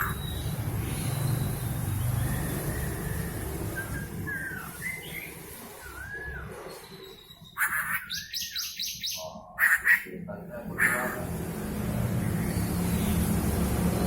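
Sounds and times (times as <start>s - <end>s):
laughingthrush singing: 0.0s - 1.3s, 7.5s - 13.6s.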